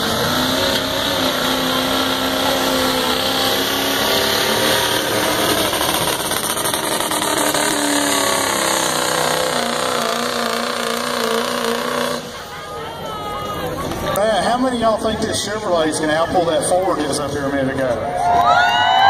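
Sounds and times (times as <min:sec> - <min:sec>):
truck engine idling: 0:00.0 - 0:16.7.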